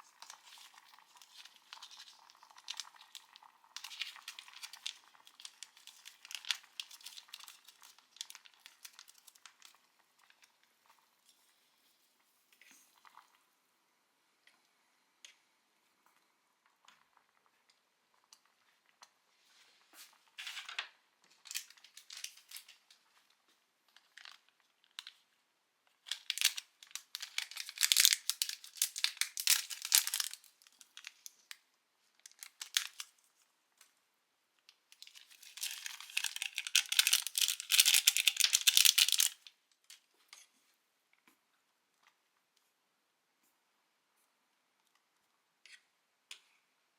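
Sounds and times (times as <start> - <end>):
plastic packaging crinkling: 0.0 - 10.5, 20.4 - 22.9, 24.0 - 25.2, 26.0 - 31.6, 32.2 - 33.2, 34.9 - 39.6.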